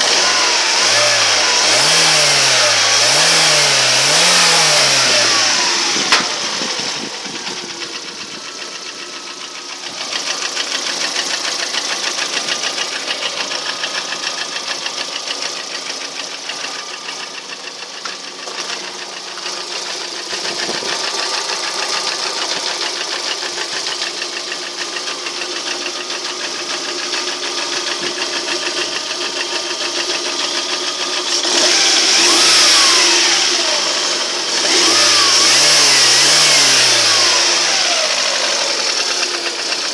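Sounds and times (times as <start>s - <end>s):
engine revving: 0.0s - 8.5s, 26.1s - 39.9s
car engine idling with knocking tick: 0.0s - 39.9s.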